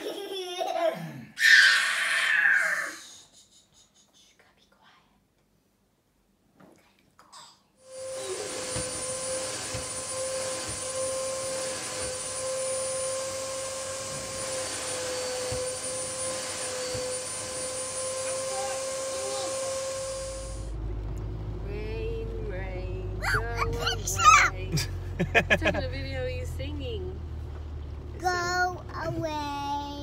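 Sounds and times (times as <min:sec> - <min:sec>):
appliance motor and fan whining: 0:07.8 - 0:30.0.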